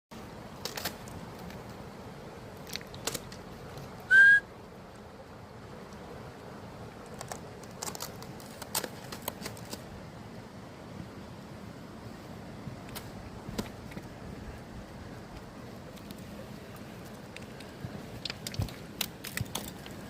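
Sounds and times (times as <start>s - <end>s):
recall whistle blast: 4.1s - 4.5s
faint clicks and snaps: 17.0s - 20.0s.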